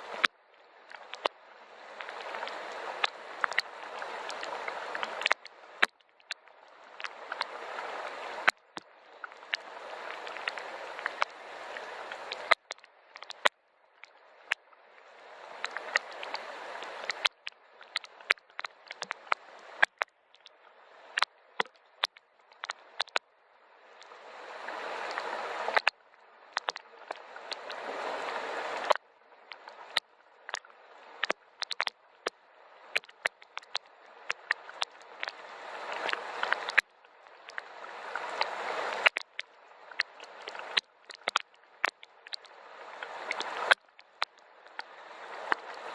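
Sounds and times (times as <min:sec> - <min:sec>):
hiss of rainfall: 0:01.5 - 0:05.8, 0:06.7 - 0:08.5, 0:09.1 - 0:12.6, 0:14.9 - 0:17.3, 0:23.7 - 0:29.0, 0:35.2 - 0:36.8, 0:37.5 - 0:39.2, 0:44.8 - 0:45.9.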